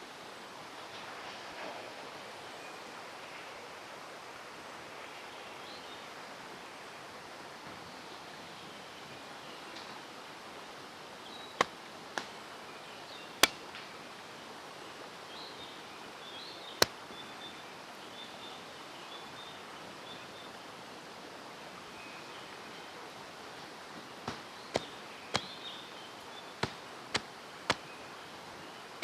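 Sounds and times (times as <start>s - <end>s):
mountain stream rushing: 10.0s - 29.0s.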